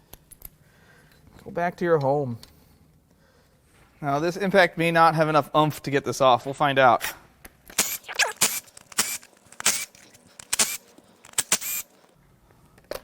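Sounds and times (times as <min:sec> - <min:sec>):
impact wrench hammering: 0:07.8 - 0:12.1.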